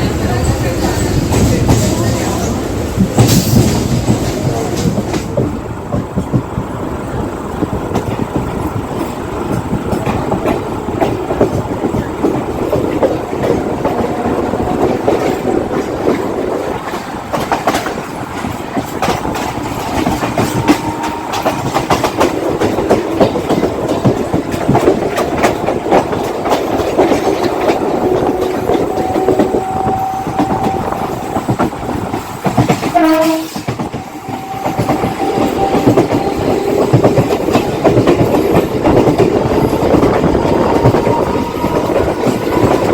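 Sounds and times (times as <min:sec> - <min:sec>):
train rumbling along track: 0:00.0 - 0:42.9
wheels clacking over rail joints: 0:00.0 - 0:42.9
train horn: 0:20.0 - 0:22.1, 0:27.4 - 0:31.5, 0:32.8 - 0:38.0, 0:39.8 - 0:42.9.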